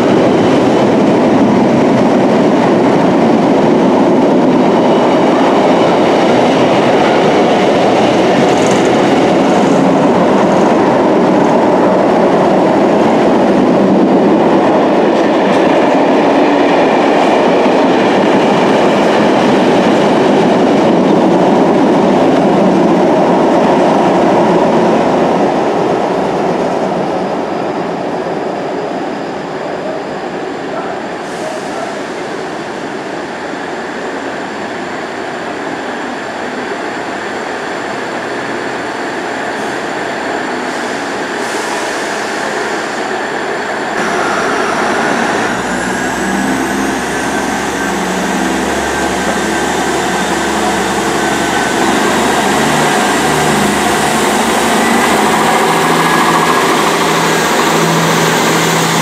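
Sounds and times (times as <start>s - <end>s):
diesel train running steadily: 0.0s - 59.0s
freight train wheels on track: 0.0s - 59.0s.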